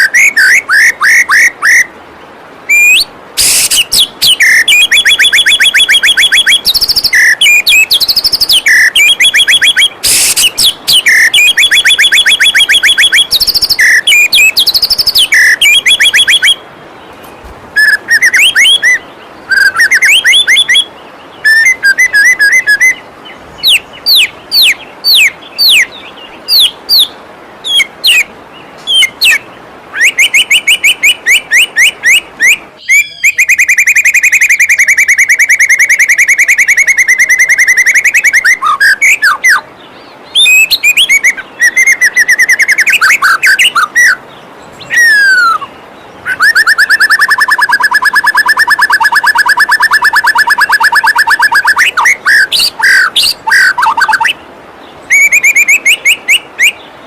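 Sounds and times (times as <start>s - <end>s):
bird song with whistles and trills: 0.0s - 2.0s, 2.7s - 57.0s
waterfall rushing: 0.0s - 33.4s.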